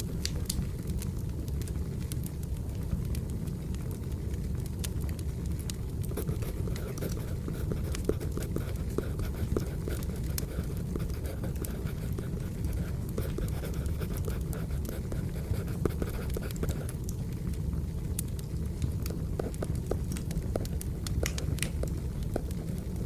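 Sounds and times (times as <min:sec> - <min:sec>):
wood fire crackling: 0:00.0 - 0:23.0
pencil scratching on paper: 0:06.2 - 0:16.8.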